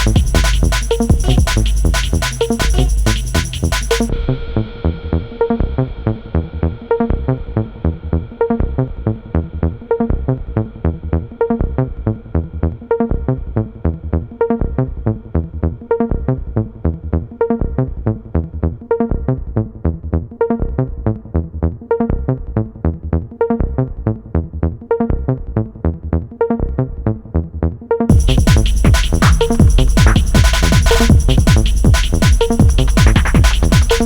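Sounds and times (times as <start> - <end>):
muffled electronic dance music: 0.0 - 4.1, 28.1 - 34.0.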